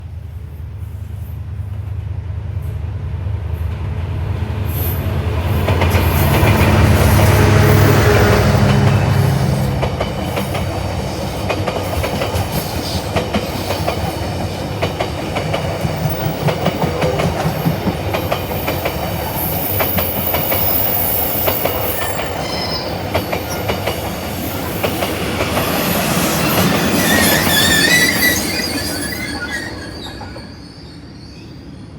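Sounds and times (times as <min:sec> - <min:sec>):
diesel locomotive engine: 0:00.0 - 0:31.9
wheels squealing: 0:18.4 - 0:31.9.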